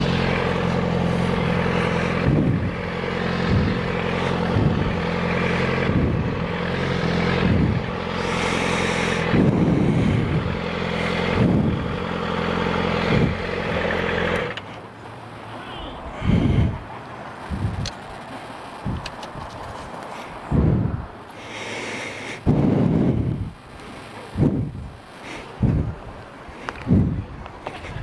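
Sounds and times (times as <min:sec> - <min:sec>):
low motor hum: 0:00.0 - 0:19.5, 0:20.3 - 0:28.0
person breathing heavily: 0:00.1 - 0:11.8, 0:15.8 - 0:17.3, 0:20.0 - 0:24.1, 0:25.1 - 0:28.0.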